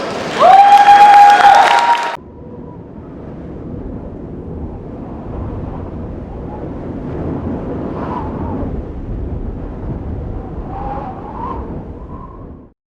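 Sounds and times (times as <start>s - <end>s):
audience rumble in hall: 0.0s - 6.8s.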